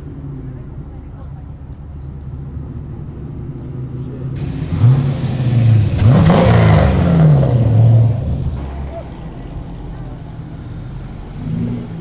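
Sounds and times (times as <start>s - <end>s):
car engine revving: 4.4s - 12.0s.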